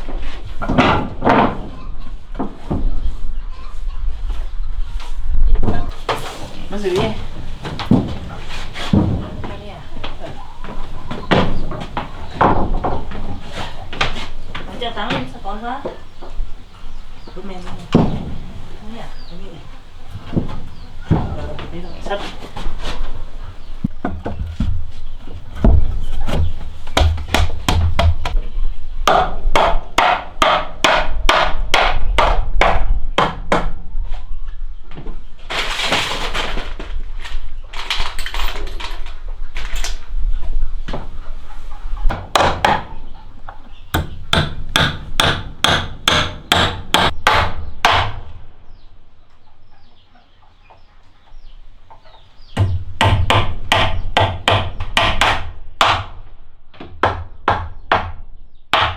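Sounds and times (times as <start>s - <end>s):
hammering blows: 5.9s - 28.4s, 29.0s - 33.6s, 42.1s - 48.2s, 52.5s - 56.1s.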